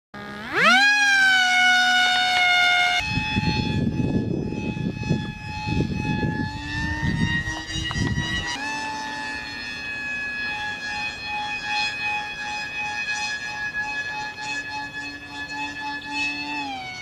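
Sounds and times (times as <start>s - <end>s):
model plane electric motor whine: 0.2s - 17.0s
gusty rumbling: 3.0s - 8.6s.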